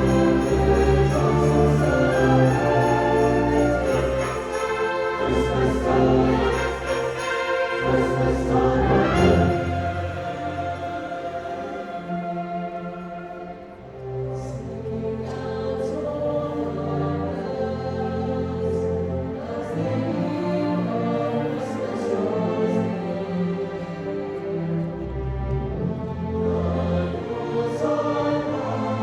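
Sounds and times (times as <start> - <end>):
orchestra playing sustained notes: 0.0 - 29.0.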